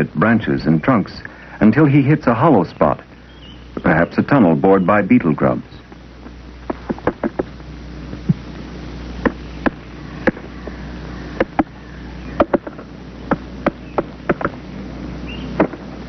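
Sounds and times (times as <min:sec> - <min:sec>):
low hum and hiss: 0:00.0 - 0:16.0
woodpecker tapping on wood: 0:06.2 - 0:07.5, 0:09.2 - 0:14.6, 0:15.5 - 0:15.9.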